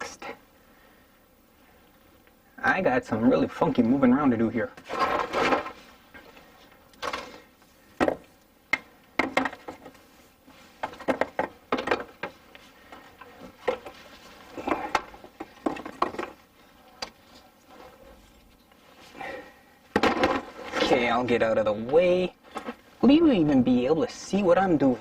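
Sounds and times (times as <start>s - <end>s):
rustling and shuffling: 0.8s - 23.9s
knocks and clunks: 19.9s - 20.5s.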